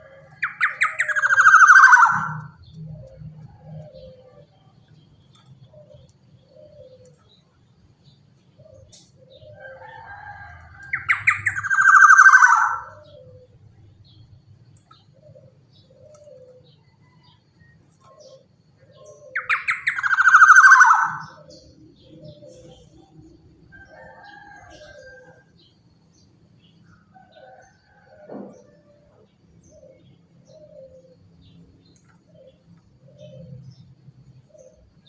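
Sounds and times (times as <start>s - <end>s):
bird harsh rasping calls: 0.4s - 2.6s, 10.9s - 13.3s.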